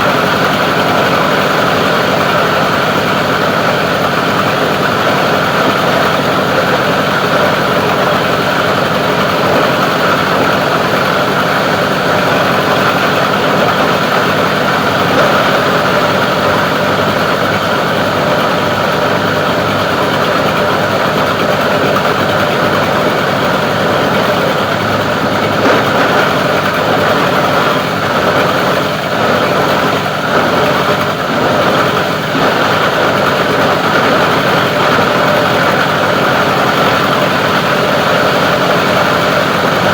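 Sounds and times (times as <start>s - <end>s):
plastic grinder running: 0.0s - 39.9s.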